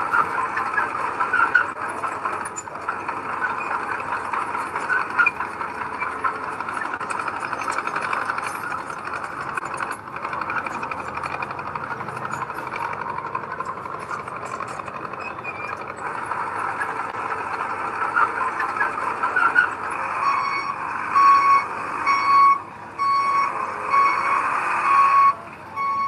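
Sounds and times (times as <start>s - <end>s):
heavy construction machinery running: 0.0s - 26.0s
vehicle reversing alarm beeping: 18.4s - 26.0s.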